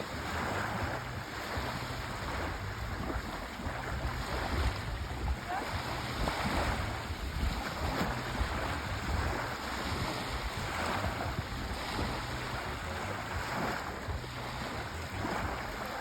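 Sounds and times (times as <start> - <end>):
sea waves washing ashore: 0.0 - 16.0
wind rumble on microphone: 0.0 - 16.0.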